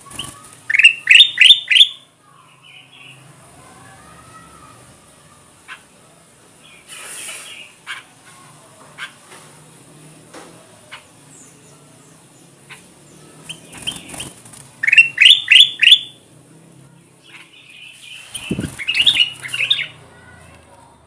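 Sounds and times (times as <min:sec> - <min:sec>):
bulbul singing whistled notes: 0:00.2 - 0:02.0, 0:13.5 - 0:16.2, 0:17.8 - 0:20.0.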